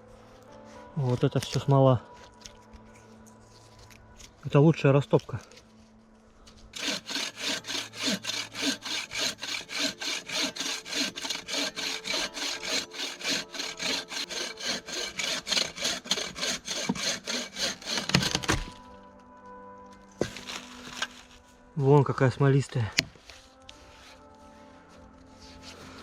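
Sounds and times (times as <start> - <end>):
hand saw cutting wood: 6.8 - 18.8, 20.2 - 21.2.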